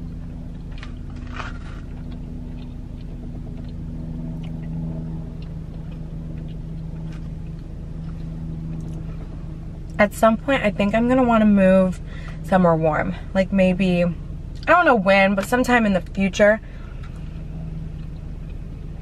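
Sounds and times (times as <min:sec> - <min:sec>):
faint eating clicks: 0:00.0 - 0:09.0, 0:17.0 - 0:19.0
car idling hum: 0:00.0 - 0:19.0.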